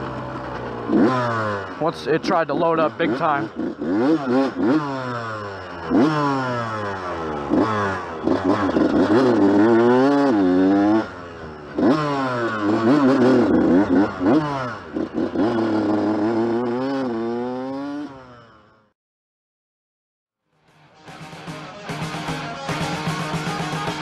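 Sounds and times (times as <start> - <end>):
dirt bike engine revving: 0.0 - 18.9.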